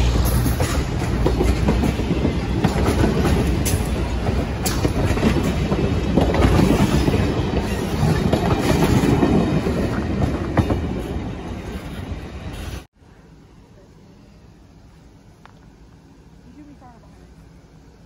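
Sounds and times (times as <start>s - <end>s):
clickety-clack over rail joints: 0.0s - 12.9s
train wheels rumbling on rails: 0.0s - 12.9s.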